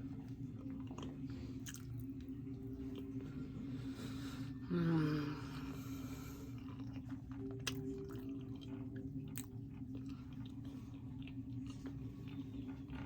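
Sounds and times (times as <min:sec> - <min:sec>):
person chewing food: 0:00.6 - 0:02.3, 0:06.4 - 0:13.0.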